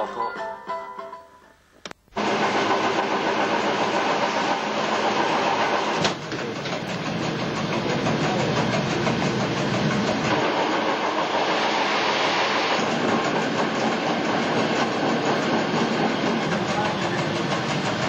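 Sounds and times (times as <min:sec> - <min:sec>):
train rumbling and rattling: 0:06.1 - 0:18.0.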